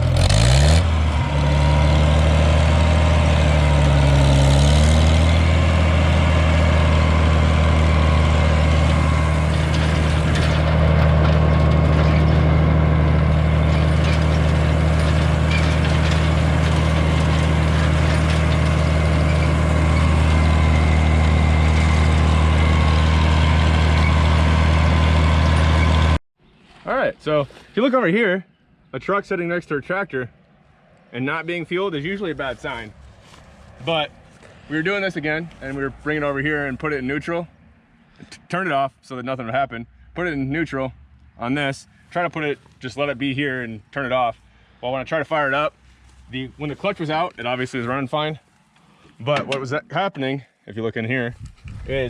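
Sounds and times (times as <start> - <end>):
tractor engine at full throttle: 0.0 - 26.2, 44.3 - 49.7.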